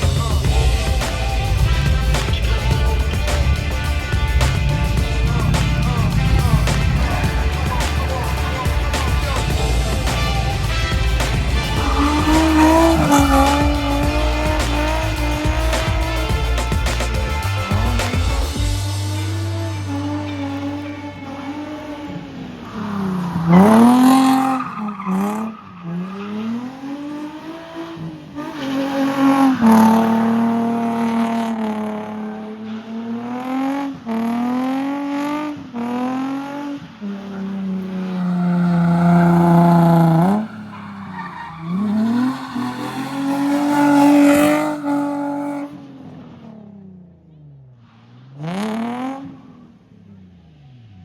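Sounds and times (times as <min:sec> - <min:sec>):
tyres squealing: 0:00.0 - 0:27.0, 0:37.5 - 0:45.6
car engine revving hard: 0:00.0 - 0:46.3, 0:48.0 - 0:49.7.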